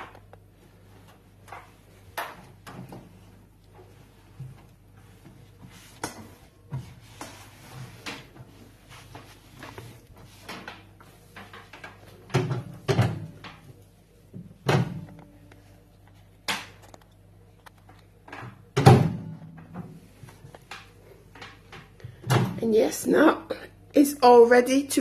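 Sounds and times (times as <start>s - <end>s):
cloth rubbing: 0.5s - 11.3s
microwave knocks and clunks: 18.8s - 19.7s.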